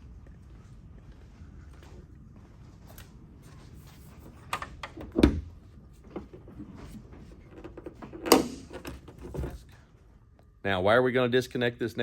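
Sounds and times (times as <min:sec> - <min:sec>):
hood latch click: 0:08.1 - 0:09.0.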